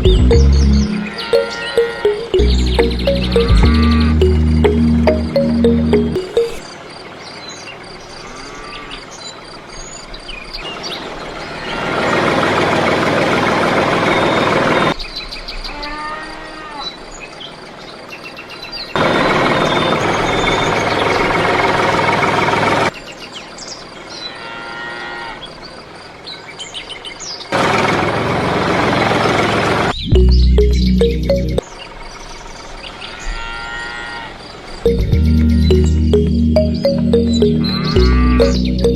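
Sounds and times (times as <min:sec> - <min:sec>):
birds chirping: 0:00.0 - 0:06.6, 0:34.8 - 0:38.9.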